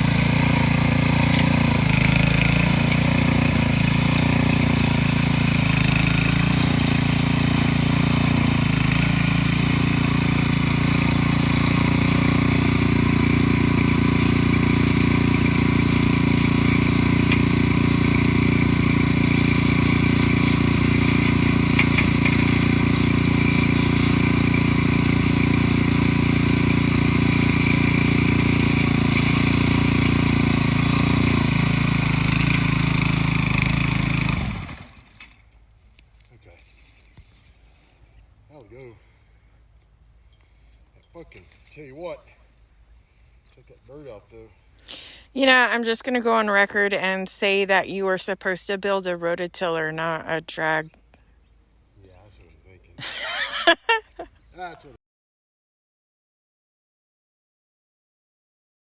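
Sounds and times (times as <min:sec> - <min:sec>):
small gasoline engine running: 0:00.0 - 0:35.4, 0:44.8 - 0:48.1, 0:53.0 - 0:54.3.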